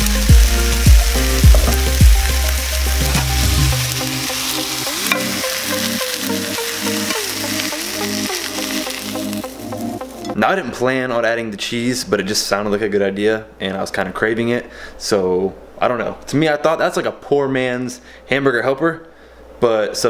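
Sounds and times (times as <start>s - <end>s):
food sizzling in a frying pan: 0.0s - 10.4s
background music: 0.0s - 10.6s
deep pounding beat: 0.3s - 4.3s.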